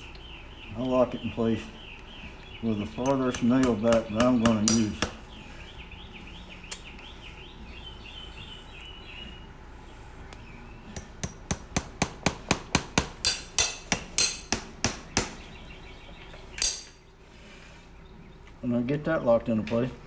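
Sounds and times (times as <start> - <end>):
hammer striking horseshoe nail: 3.0 - 5.2, 11.0 - 15.5, 16.6 - 17.0.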